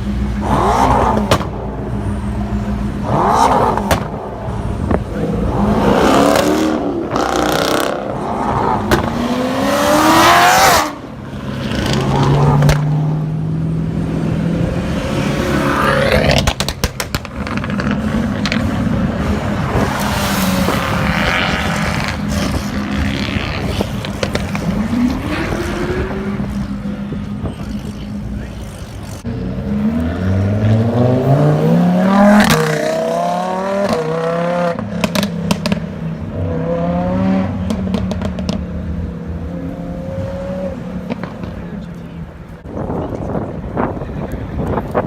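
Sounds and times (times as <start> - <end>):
sports car engine revving: 0.0 - 42.5
exhaust cracks: 16.0 - 20.1.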